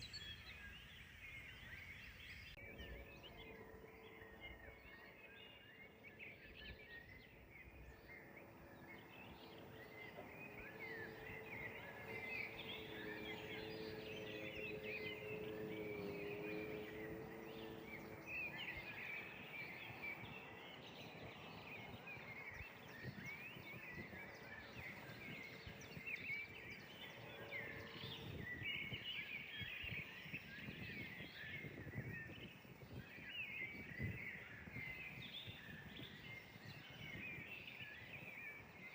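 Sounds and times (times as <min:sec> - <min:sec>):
low steady hum: 0:00.0 - 0:19.2
songbirds chirping and trilling: 0:00.0 - 0:38.9.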